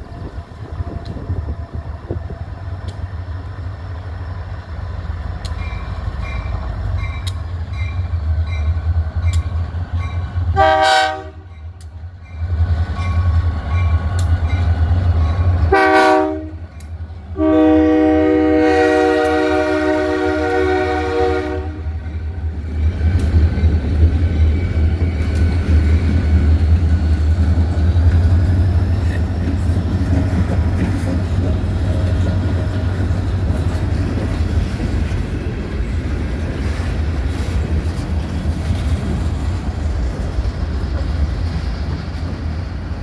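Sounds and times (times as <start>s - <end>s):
diesel locomotives rumbling past: 0.0s - 43.0s
locomotive air horn: 10.6s - 11.5s, 15.7s - 16.6s, 17.4s - 22.0s.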